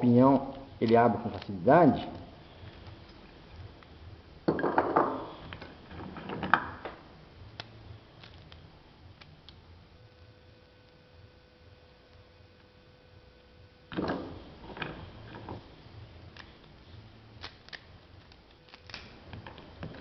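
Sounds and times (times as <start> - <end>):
nut shells cracking: 17.4 - 19.2.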